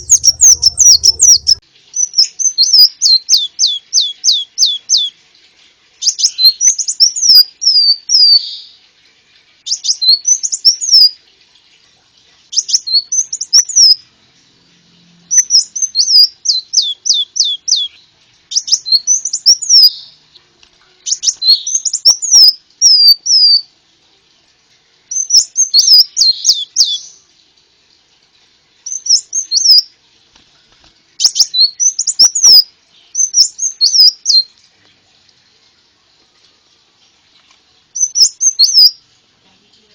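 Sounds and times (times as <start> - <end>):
sunbird chirps and trills: 0.0 - 5.1, 12.5 - 20.3, 21.0 - 23.7, 25.1 - 27.2, 28.9 - 29.8, 31.2 - 34.5, 38.0 - 39.0.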